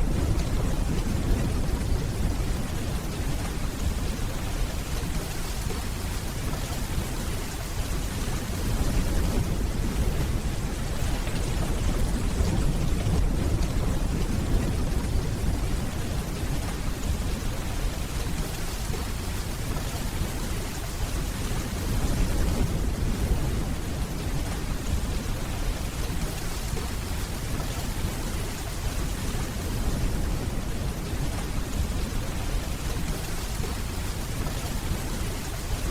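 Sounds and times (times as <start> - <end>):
distant thunder rumbling: 0.0 - 6.2
steady rainfall: 0.0 - 35.9.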